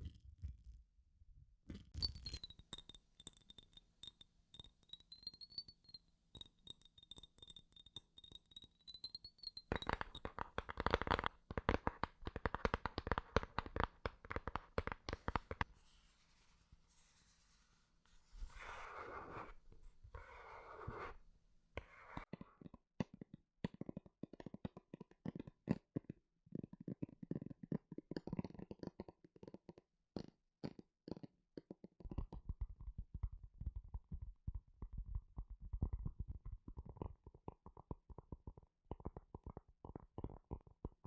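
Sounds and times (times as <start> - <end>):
quick taps and clicks: 9.7 - 15.7
scratchy rubbing: 14.6 - 22.3.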